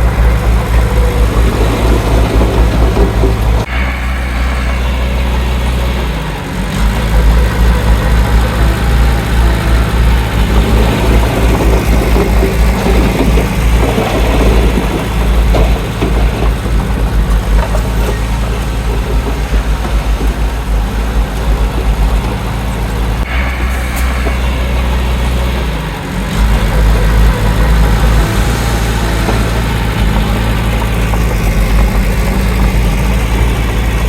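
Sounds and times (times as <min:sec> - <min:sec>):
heavy diesel engine rumbling: 0:00.0 - 0:34.0.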